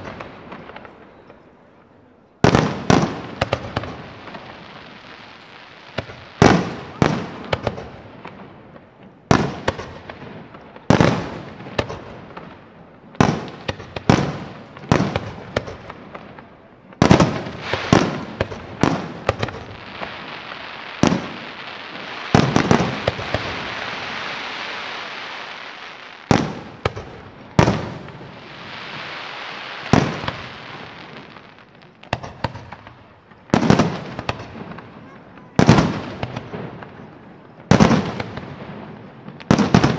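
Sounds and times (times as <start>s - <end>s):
crackling hiss of fireworks: 0.0s - 39.9s.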